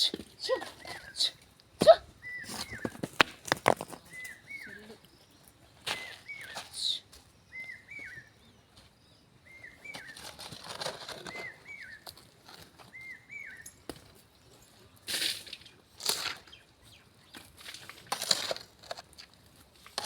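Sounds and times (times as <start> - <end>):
scraping and rustling: 2.4 - 5.0, 9.8 - 13.0, 17.3 - 20.0.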